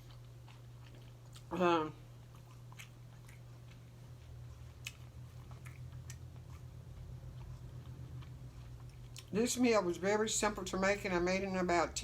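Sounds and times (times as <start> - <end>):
person chewing with wet smacks: 0.0 - 9.6
steady low hum: 0.0 - 12.0.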